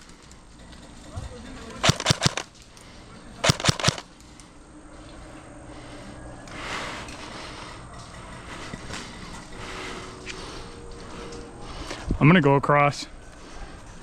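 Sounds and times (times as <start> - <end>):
outdoor background noise: 0.0 - 14.0
airsoft rifle firing: 1.8 - 2.5, 3.4 - 4.1.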